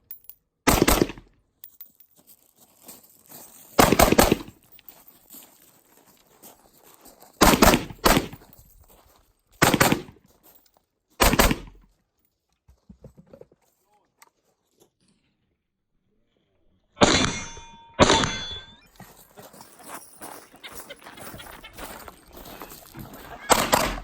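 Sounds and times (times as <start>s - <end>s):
pistol shots in quick pairs: 0.7s - 1.2s, 3.8s - 4.6s, 7.4s - 8.4s, 9.6s - 10.2s, 11.2s - 11.8s, 17.0s - 17.4s, 23.4s - 24.0s.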